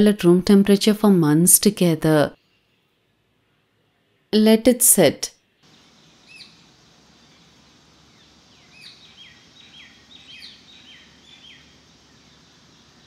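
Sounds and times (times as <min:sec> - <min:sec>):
steady low hiss: 0:00.0 - 0:13.0
birds chirping: 0:05.7 - 0:13.0.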